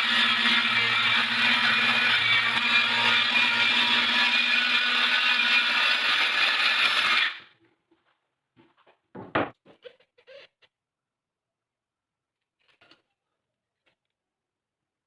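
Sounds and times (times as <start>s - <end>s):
electric power tool motor: 0.0s - 7.4s.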